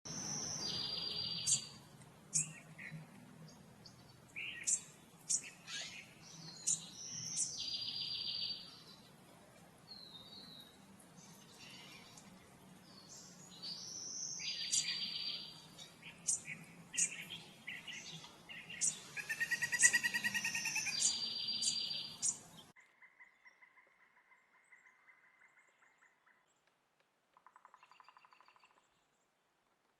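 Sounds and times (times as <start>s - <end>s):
songbirds singing high trills: 0.1s - 3.0s, 3.8s - 9.0s, 9.9s - 22.7s.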